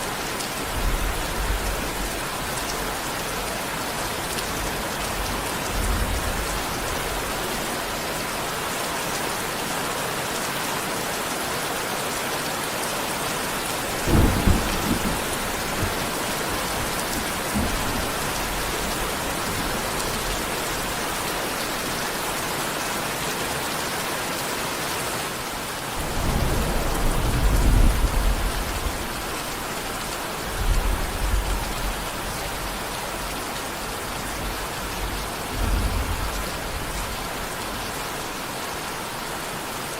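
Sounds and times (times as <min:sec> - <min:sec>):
heavy rain falling: 0:00.0 - 0:39.9
thunder rumbling: 0:13.9 - 0:20.5, 0:26.0 - 0:29.4.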